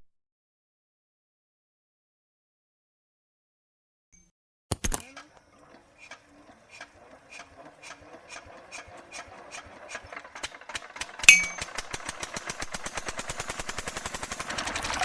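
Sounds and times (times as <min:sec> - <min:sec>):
mechanism click: 0:04.7 - 0:06.2
engine ticking speeding up: 0:05.4 - 0:15.0
sharp metallic ping: 0:11.3 - 0:11.7.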